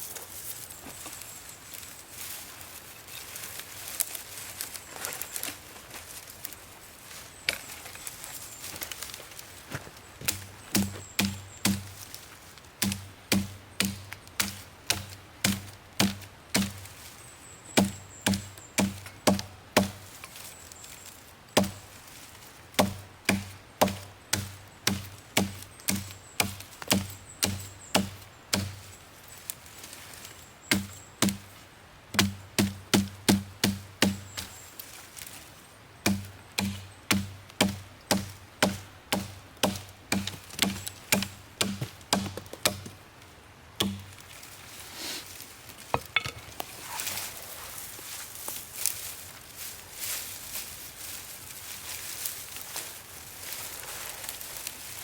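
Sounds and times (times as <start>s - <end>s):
axe chopping wood: 10.2s - 12.1s, 12.8s - 16.9s, 17.8s - 20.1s, 21.6s - 21.9s, 22.8s - 28.8s, 30.7s - 31.5s, 32.1s - 34.5s, 36.0s - 43.0s, 43.8s - 44.2s.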